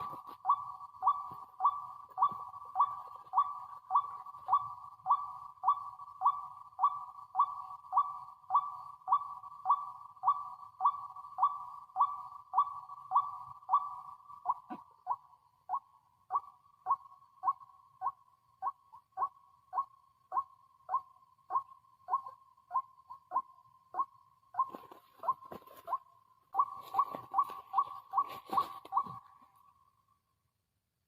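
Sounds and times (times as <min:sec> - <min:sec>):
waterhen calling: 0:26.6 - 0:29.3.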